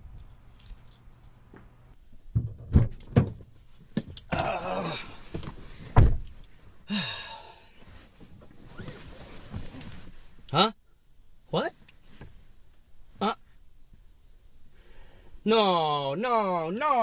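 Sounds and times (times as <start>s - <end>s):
heavy thumps and knocks: 2.2s - 4.5s, 5.3s - 6.3s.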